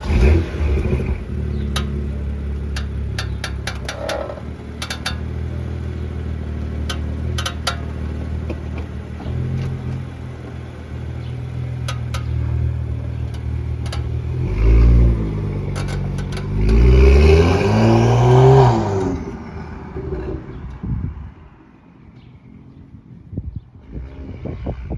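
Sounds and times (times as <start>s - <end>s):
car engine running: 0.0s - 19.5s
sharp clicks from car: 0.2s - 5.8s, 6.8s - 19.4s.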